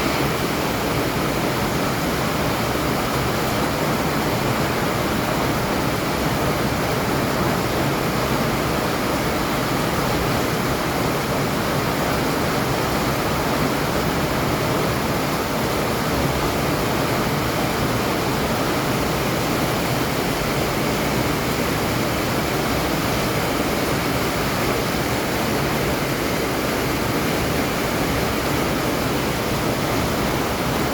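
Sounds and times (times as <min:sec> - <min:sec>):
heavy rain pouring: 0:00.0 - 0:09.1.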